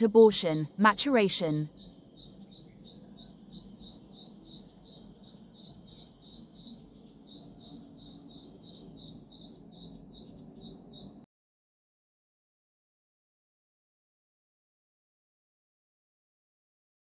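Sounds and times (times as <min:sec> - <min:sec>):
small bird chirping: 0:00.0 - 0:11.2.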